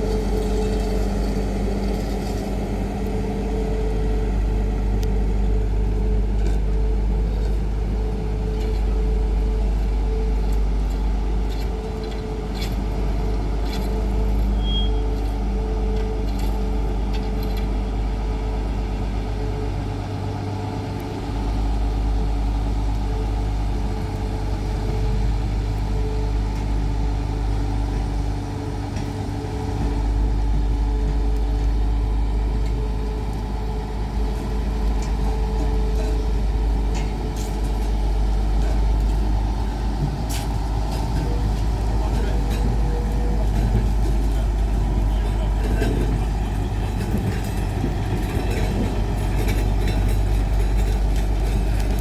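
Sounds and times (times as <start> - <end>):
electric tram rumbling: 0.0 - 52.0
tram hum: 0.0 - 52.0.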